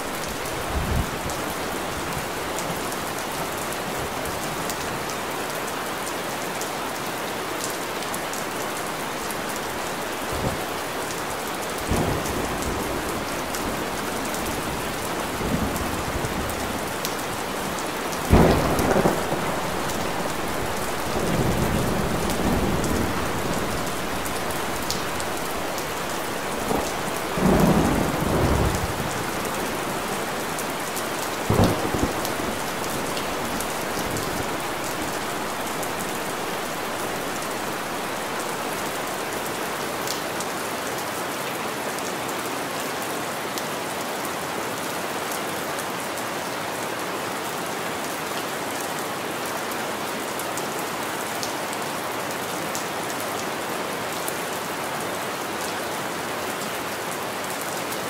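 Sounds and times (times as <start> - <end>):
steady rain hissing: 0.0 - 43.4.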